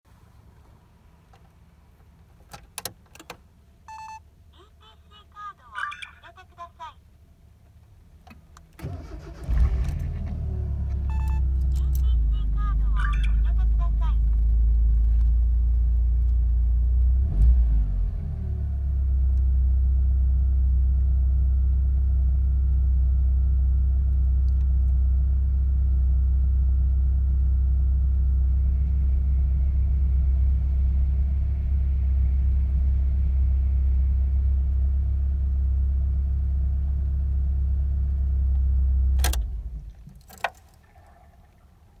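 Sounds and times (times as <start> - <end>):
car engine idling: 8.0 - 17.4, 18.6 - 42.0.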